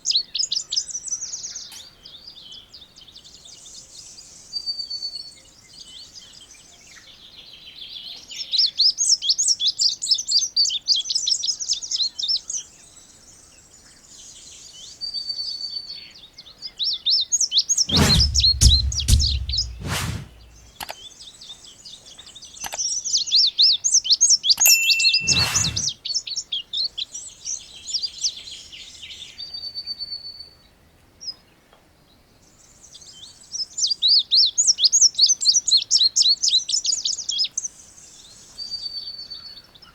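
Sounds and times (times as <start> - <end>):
loud low thumps: 17.9 - 20.8.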